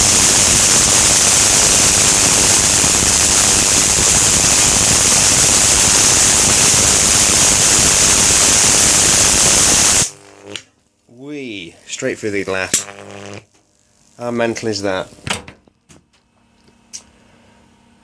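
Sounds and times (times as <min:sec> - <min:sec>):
electric arc hissing: 0:00.0 - 0:15.3.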